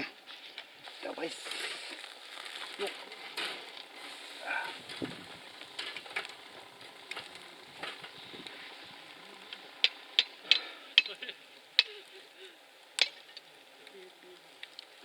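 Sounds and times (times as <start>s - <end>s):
wood fire crackling: 0.0s - 15.0s
food sizzling: 0.8s - 15.0s
sharp fire pops: 12.9s - 13.6s.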